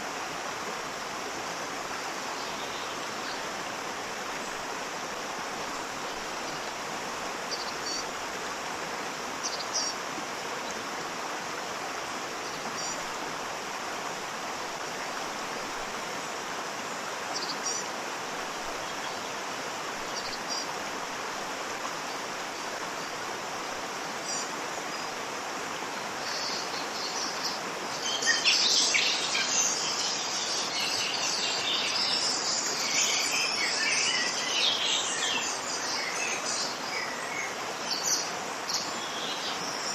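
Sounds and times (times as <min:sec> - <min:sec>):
waterfall rushing: 0:00.0 - 0:39.9
dense birdsong: 0:26.2 - 0:39.9.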